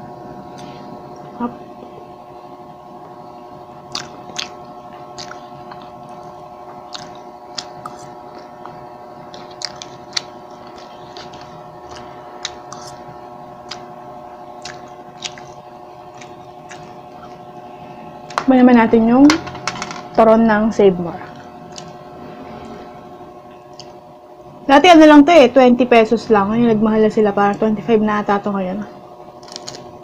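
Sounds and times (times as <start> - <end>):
steady hum: 0.0 - 30.0
close chewing with mouth clicks: 3.8 - 17.6.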